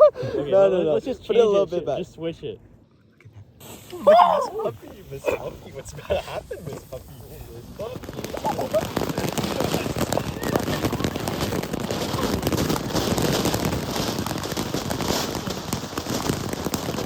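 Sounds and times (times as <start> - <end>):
firework hissing and crackling: 3.6 - 17.0.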